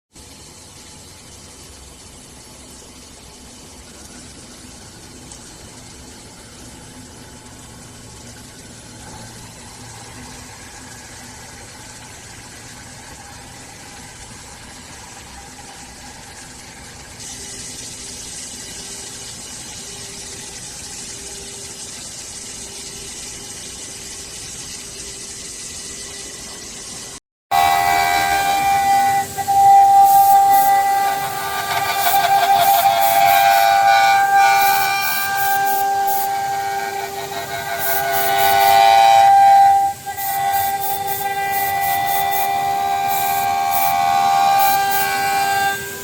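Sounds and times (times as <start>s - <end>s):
cnc router machining: 27.5s - 46.0s.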